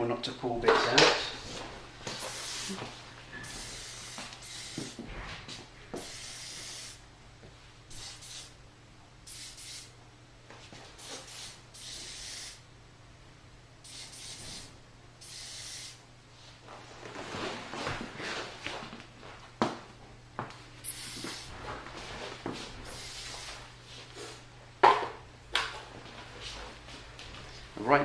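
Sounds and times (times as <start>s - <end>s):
aerosol hairspray hissing: 2.1s - 2.8s, 3.4s - 5.0s, 6.0s - 7.0s, 7.9s - 8.6s, 9.3s - 10.0s, 11.0s - 12.6s, 13.9s - 16.0s, 20.8s - 21.5s, 22.8s - 23.6s.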